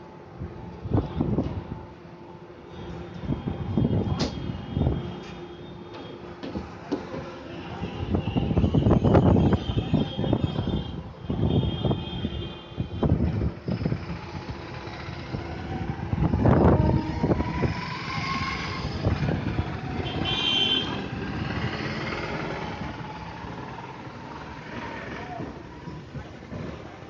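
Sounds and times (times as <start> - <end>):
train rumbling and clattering: 0.5 - 2.3, 3.0 - 7.6, 13.0 - 20.0, 20.9 - 27.0.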